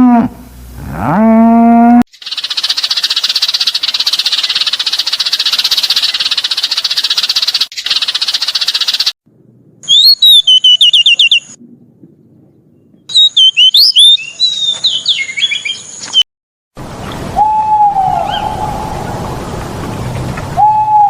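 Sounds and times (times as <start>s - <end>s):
high whistled bird calls: 9.9s - 11.6s, 13.1s - 16.2s, 17.4s - 19.0s.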